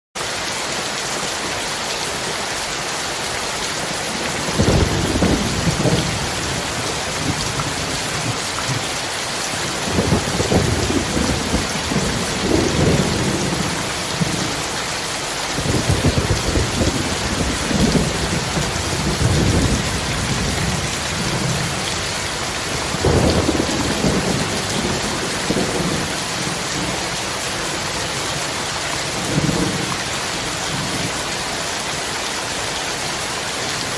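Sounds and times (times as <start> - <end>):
heavy rain hissing: 0.2 - 33.9
thunder rolling: 4.4 - 9.0, 9.6 - 14.6, 15.4 - 21.8, 22.4 - 27.0.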